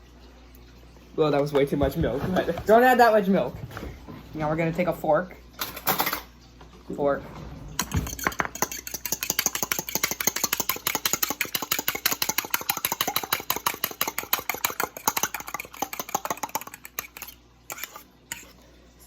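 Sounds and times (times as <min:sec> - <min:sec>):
fork beating egg in a dish: 0:07.8 - 0:19.0.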